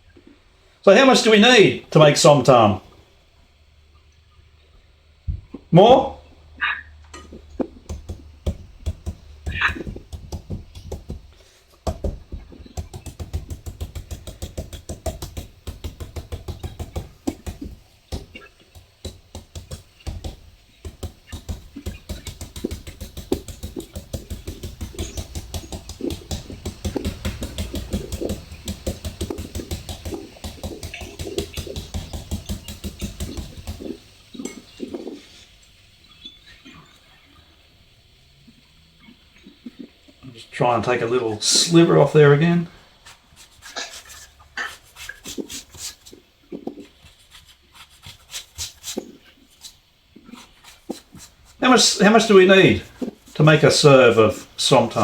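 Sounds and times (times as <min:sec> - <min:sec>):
knife chopping papaya: 0:07.6 - 0:35.2.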